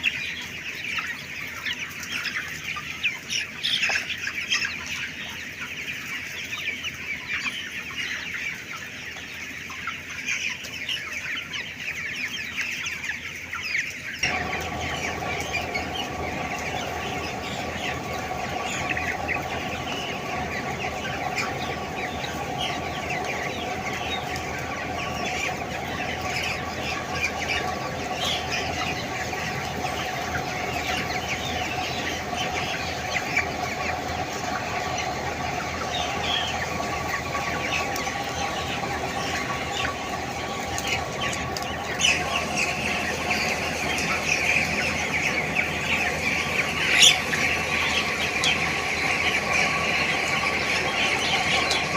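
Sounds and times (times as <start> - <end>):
chickens cheeping and clucking: 0.0 - 51.9
steady machine hum: 14.2 - 51.9.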